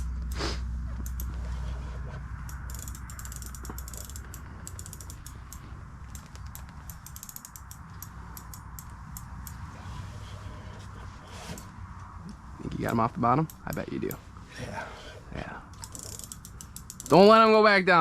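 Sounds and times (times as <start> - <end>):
low steady hum: 0.0 - 17.7
fishing reel clicking: 1.0 - 1.3, 2.4 - 9.6, 15.8 - 17.4.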